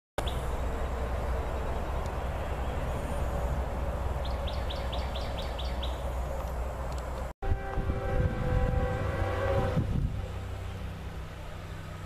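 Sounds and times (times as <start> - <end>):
low outdoor rumble: 0.2 - 12.0
bird chirping high: 4.2 - 6.1.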